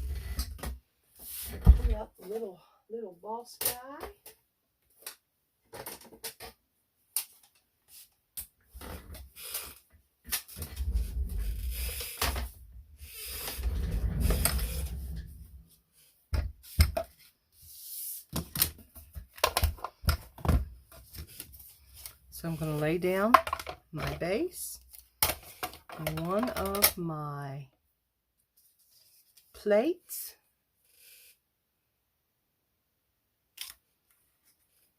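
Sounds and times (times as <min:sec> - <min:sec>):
machine scraping on tabletop: 0:13.0 - 0:15.5.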